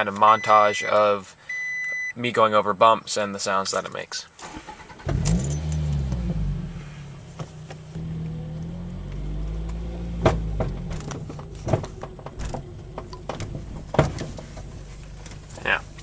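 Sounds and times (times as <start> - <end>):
car engine running low: 5.0 - 16.0
car clunking over bumps: 7.2 - 16.0.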